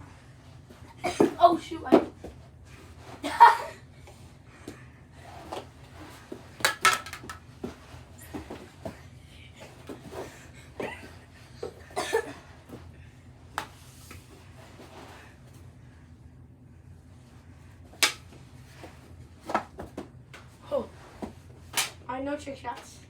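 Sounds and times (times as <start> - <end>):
hockey sticks and ball clacking: 6.6 - 7.4.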